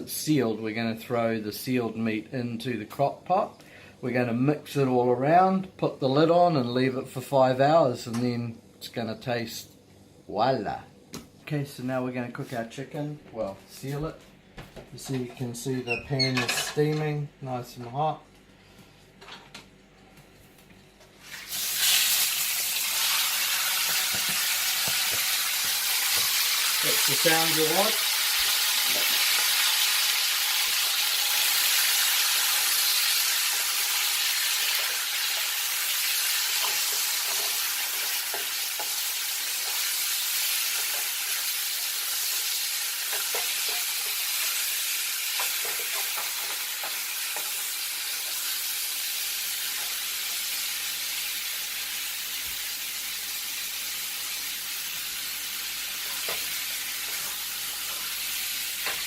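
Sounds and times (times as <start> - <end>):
chicken sizzling in a frying pan: 21.2 - 59.0.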